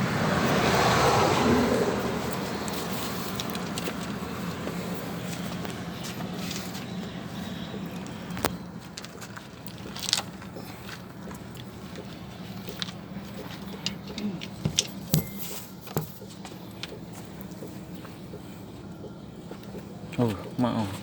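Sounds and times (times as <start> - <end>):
tools clicking on engine parts: 2.3 - 18.0.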